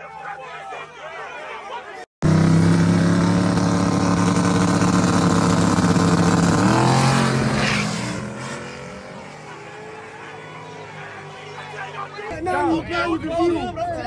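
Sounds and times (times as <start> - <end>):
drag racing engines revving: 2.2 - 13.3.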